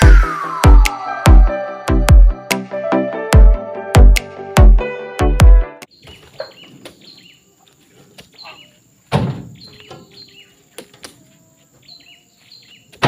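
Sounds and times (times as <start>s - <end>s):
bird chirping: 5.9s - 13.0s
loud thump: 9.1s - 9.6s.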